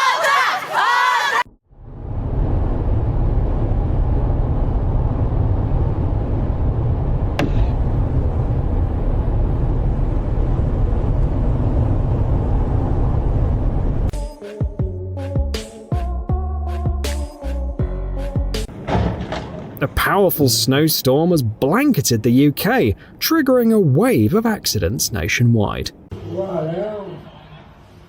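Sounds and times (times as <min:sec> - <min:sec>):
vehicle road rumble: 0:01.8 - 0:14.1
music: 0:14.1 - 0:18.7.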